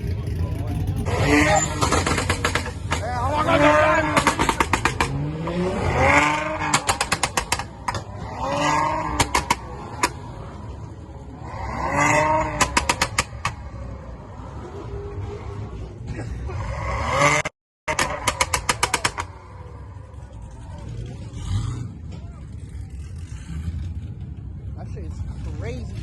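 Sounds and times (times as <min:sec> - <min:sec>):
exhaust pops and crackles: 0:00.0 - 0:10.2, 0:12.5 - 0:13.6, 0:17.9 - 0:19.4
vehicle engine revving: 0:00.0 - 0:26.0.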